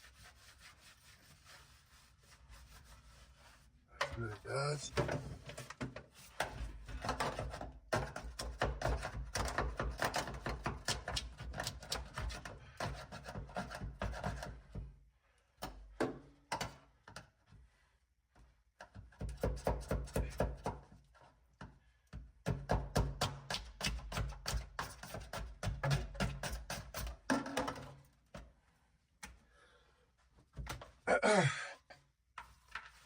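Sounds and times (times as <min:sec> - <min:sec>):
knocking and scraping on metal floor: 0:04.0 - 0:14.9, 0:22.4 - 0:28.4.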